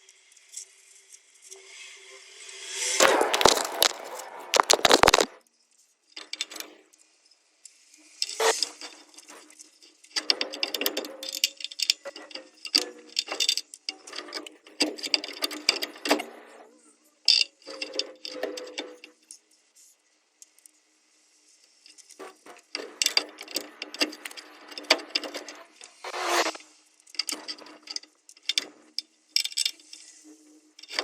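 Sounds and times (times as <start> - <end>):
metal clinking and rattling: 3.0 - 5.3, 6.2 - 6.8, 8.2 - 16.6, 17.3 - 19.4, 21.8 - 30.1, 30.8 - 31.0.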